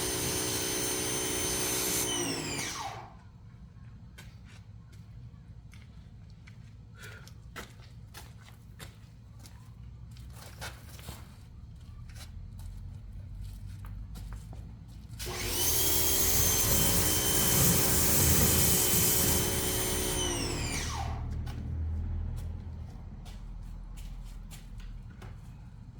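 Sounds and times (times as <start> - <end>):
pressure washer running: 0.0 - 3.1, 15.2 - 21.4.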